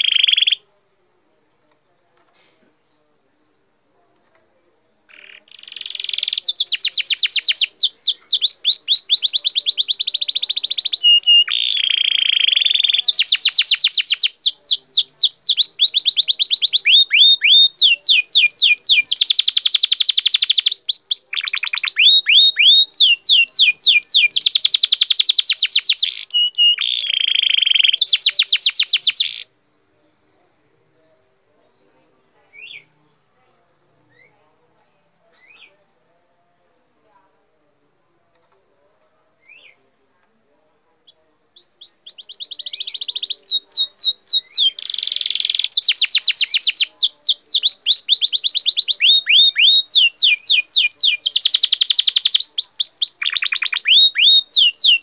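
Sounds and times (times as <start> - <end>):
songbird singing trills: 0.0 - 0.6, 5.1 - 33.0, 41.0 - 55.0.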